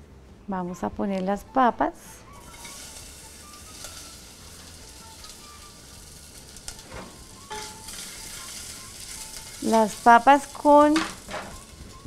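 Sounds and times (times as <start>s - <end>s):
potatoes sizzling in hot oil: 2.4s - 12.0s.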